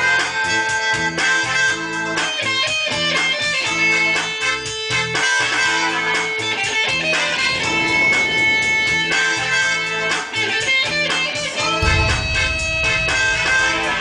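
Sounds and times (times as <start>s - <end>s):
rhythmic bass line: 11.8s - 14.0s.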